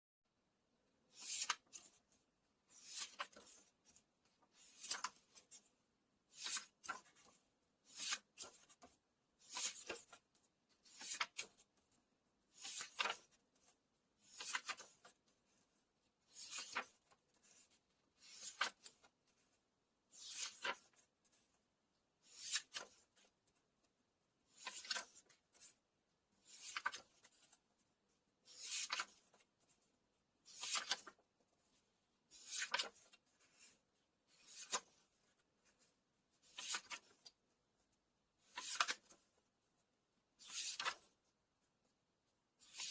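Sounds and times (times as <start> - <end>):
book pages turning: 1.1 - 2.1, 2.7 - 5.6, 6.3 - 11.8, 12.5 - 15.6, 16.3 - 19.5, 20.2 - 21.4, 22.2 - 23.3, 24.5 - 25.8, 26.4 - 27.7, 28.5 - 29.8, 30.5 - 37.4, 38.4 - 39.4, 40.4 - 41.2, 42.6 - 42.9.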